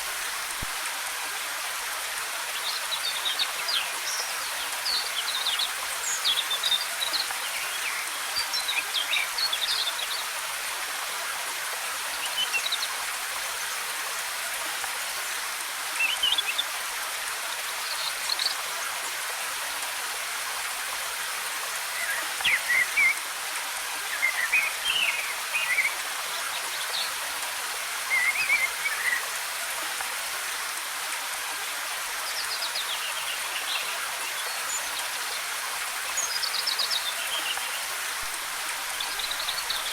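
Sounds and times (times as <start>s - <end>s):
waterfall rushing: 20.3s - 39.9s.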